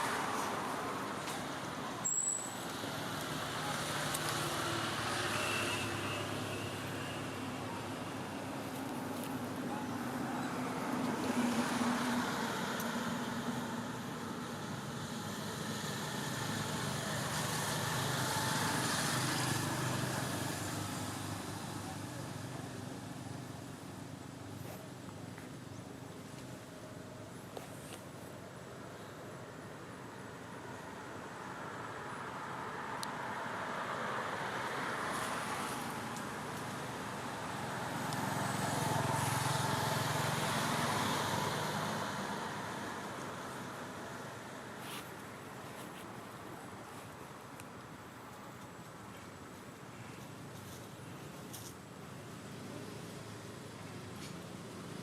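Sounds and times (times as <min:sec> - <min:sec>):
vehicle passing by: 0:09.7 - 0:22.6, 0:32.8 - 0:44.3.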